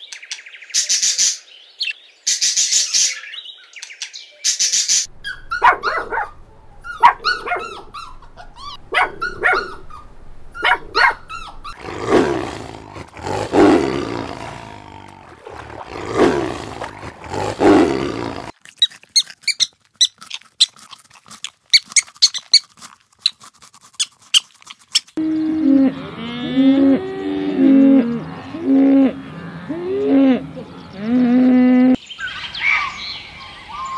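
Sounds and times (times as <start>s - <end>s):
puppies whining and yipping: 5.2s - 11.8s
tiger growling: 5.6s - 18.6s.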